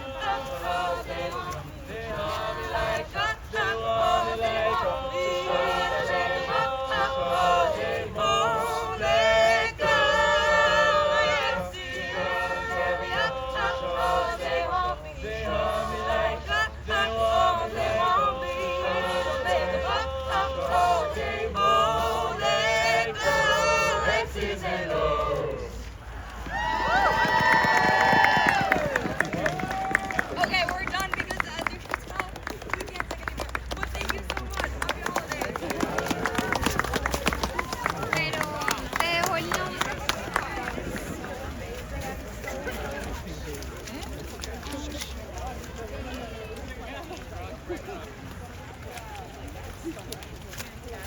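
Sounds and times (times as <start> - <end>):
group singing in harmony: 0.0 - 25.9.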